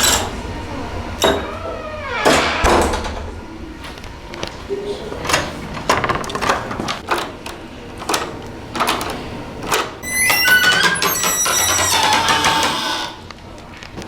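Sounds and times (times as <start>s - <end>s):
door creaking and squealing: 1.2s - 3.2s, 10.0s - 13.3s.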